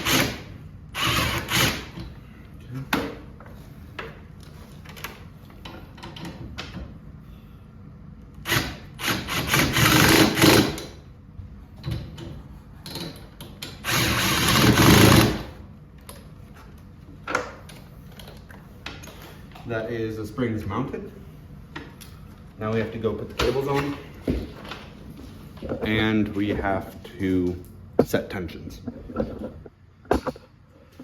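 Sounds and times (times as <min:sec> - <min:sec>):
power drill driving bolts: 0:00.0 - 0:02.0, 0:08.4 - 0:10.9, 0:13.6 - 0:15.5.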